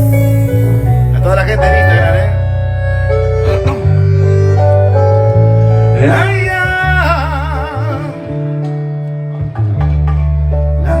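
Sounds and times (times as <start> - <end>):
live band playing: 0.0 - 7.2
person singing wavering ay: 5.9 - 8.4.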